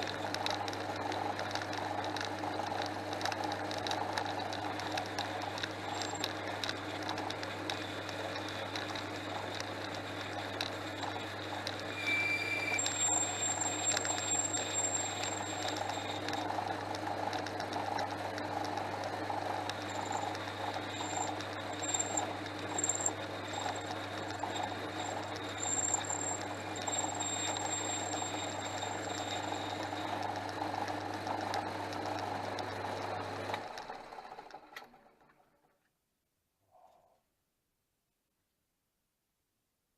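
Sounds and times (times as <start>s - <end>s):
thin high whine: 5.8s - 6.6s, 10.9s - 16.7s, 19.5s - 30.4s
lathe motor hum: 12.8s - 34.7s.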